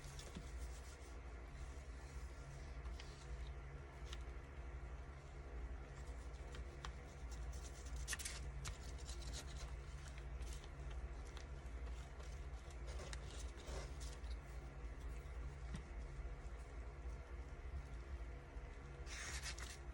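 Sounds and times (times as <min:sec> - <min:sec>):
faint low hum: 0:00.0 - 0:19.9
paper rustling and snipping: 0:06.0 - 0:14.4, 0:19.1 - 0:19.8.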